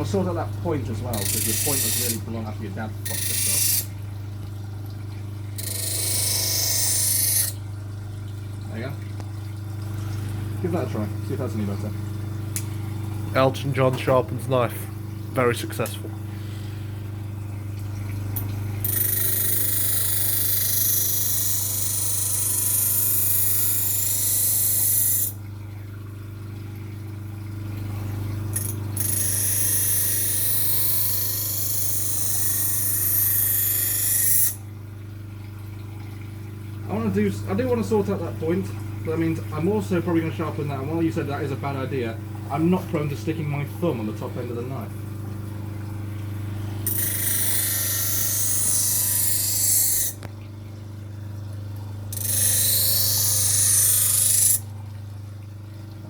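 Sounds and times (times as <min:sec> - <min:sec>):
grinder motor hum: 0:00.0 - 0:04.0, 0:05.5 - 0:07.6, 0:46.2 - 0:50.4, 0:52.0 - 0:54.8
grinder motor humming: 0:01.0 - 0:04.0
knife blade grinding: 0:01.2 - 0:02.2, 0:03.1 - 0:03.9, 0:05.6 - 0:07.6, 0:18.8 - 0:25.4, 0:28.6 - 0:34.6, 0:46.9 - 0:50.3, 0:52.1 - 0:54.7.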